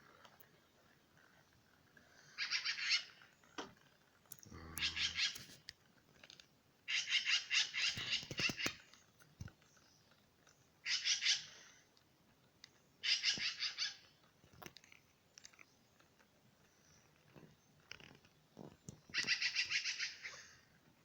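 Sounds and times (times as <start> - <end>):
bird chattering: 4.5 - 5.5, 6.9 - 8.8, 19.1 - 20.4.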